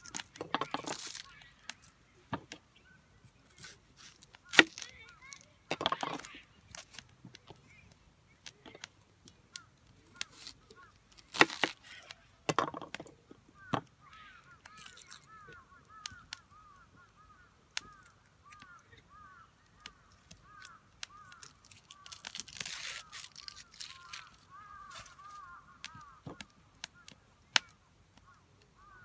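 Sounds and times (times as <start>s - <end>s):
wood knocks and crackles: 0.0s - 2.7s, 3.5s - 7.6s, 10.1s - 11.9s, 12.5s - 16.4s, 17.8s - 28.3s
firewood being split: 0.0s - 29.0s.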